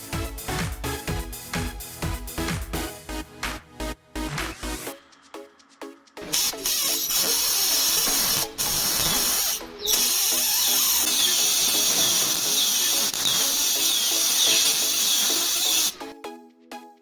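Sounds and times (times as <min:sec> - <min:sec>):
background music: 0:00.0 - 0:17.0
spark welder crackling hiss: 0:06.2 - 0:16.1.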